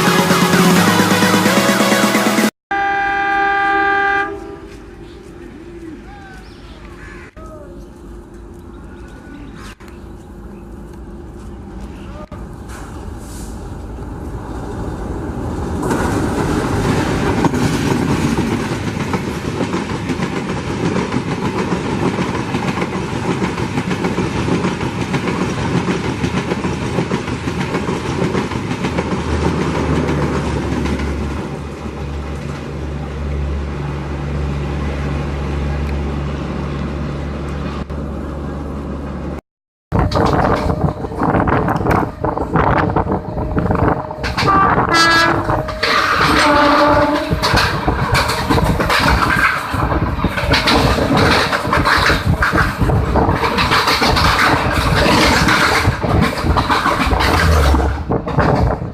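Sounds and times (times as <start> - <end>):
train wheels clattering over rail joints: 14.3 - 32.8, 44.1 - 58.9.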